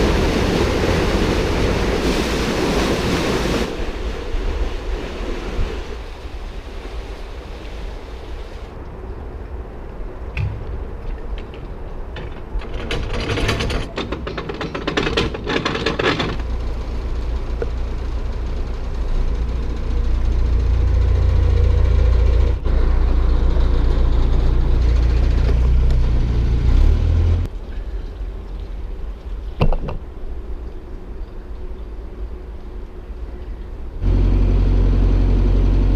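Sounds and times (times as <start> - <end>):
boat diesel engine rumble: 0.0 - 4.2, 10.4 - 28.5, 33.6 - 35.9.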